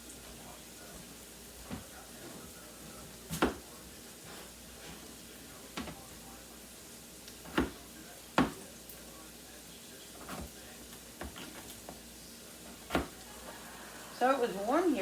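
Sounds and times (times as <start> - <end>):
knife knocking on cutting board: 8.4 - 8.6, 12.8 - 13.2.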